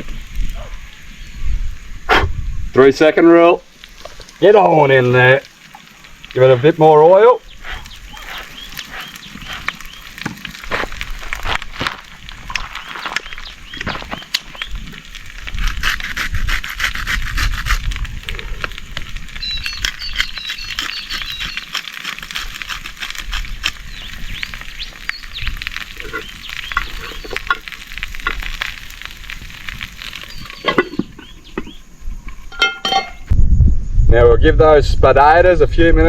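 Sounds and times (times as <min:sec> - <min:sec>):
potatoes sizzling in hot oil: 0:03.6 - 0:31.8.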